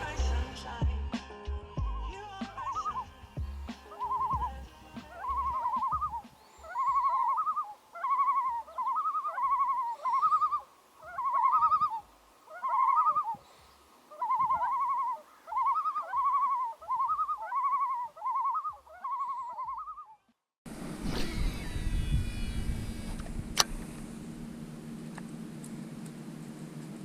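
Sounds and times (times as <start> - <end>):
loon calling: 1.9 - 20.4.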